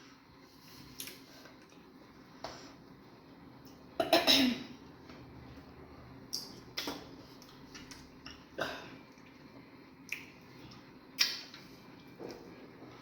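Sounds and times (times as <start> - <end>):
wet lip smacks: 11.2 - 11.6.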